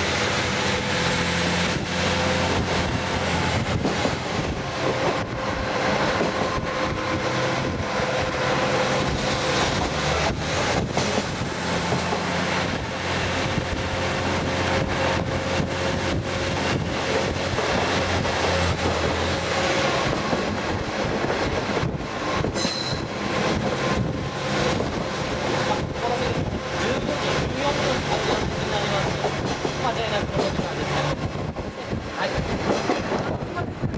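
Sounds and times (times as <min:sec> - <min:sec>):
train engine and wheel rumble: 0:00.0 - 0:33.9
rail-joint clicks: 0:09.6 - 0:12.8, 0:21.1 - 0:23.6, 0:27.0 - 0:31.2.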